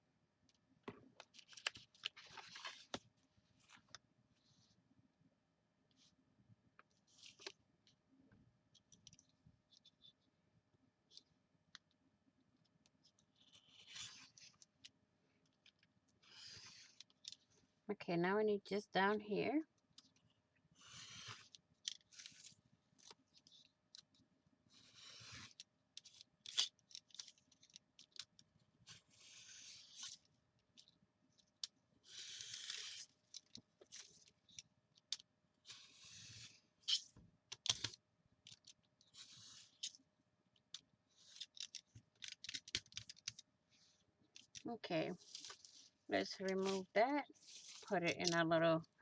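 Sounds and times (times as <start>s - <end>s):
craft knife scraping paper: 13.4s - 14.6s, 16.2s - 17.1s, 20.8s - 22.6s, 24.7s - 27.4s, 28.8s - 30.3s, 32.0s - 33.2s, 35.6s - 37.1s, 39.1s - 40.0s, 41.1s - 41.8s, 43.1s - 48.4s.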